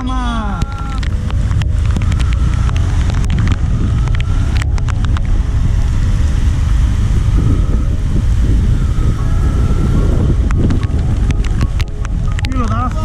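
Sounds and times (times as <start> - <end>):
engine and road rumble: 0.0 - 13.0
wind on microphone: 0.5 - 13.0
sharp clicks: 0.6 - 5.4, 10.3 - 13.0.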